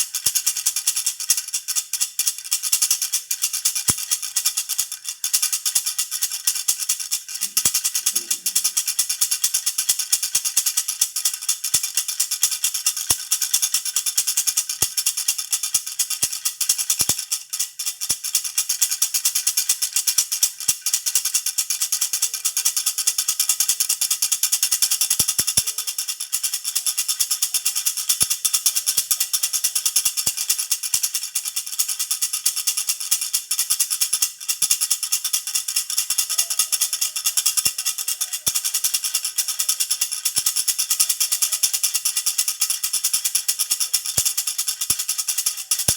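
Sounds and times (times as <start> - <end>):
baby rattle jingling: 0.1 - 45.9.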